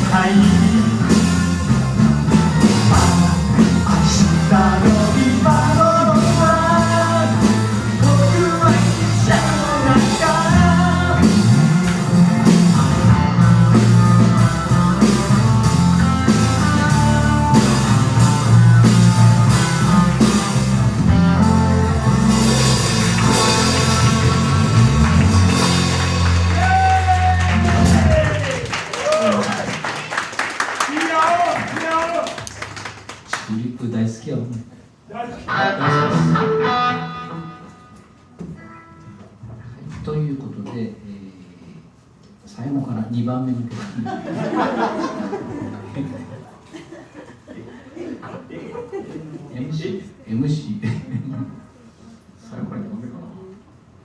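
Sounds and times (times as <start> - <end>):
electric guitar lead melody: 0.0 - 26.6, 35.5 - 39.2
bass guitar: 0.0 - 28.8, 35.4 - 38.7
drum kit: 0.0 - 33.0.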